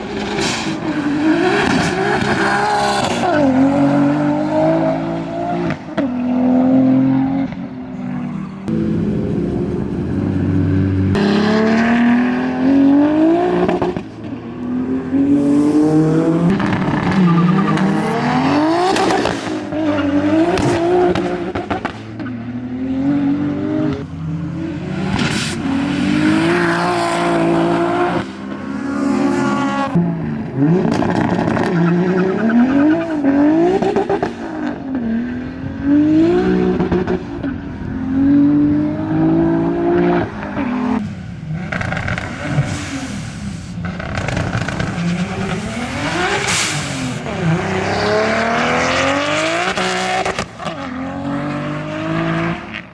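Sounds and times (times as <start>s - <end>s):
car exhaust accelerating: 0.0s - 52.9s
exhaust cracks at shifts: 41.6s - 47.4s.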